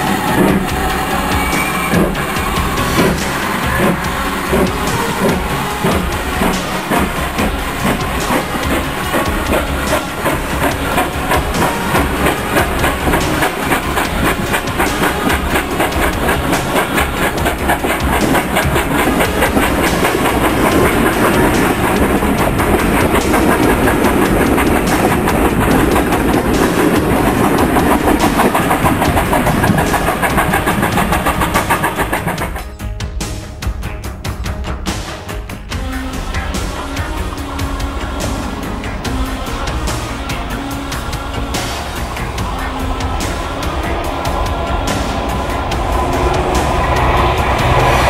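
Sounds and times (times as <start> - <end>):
train wheels clicking over rail joints: 0.0 - 32.7.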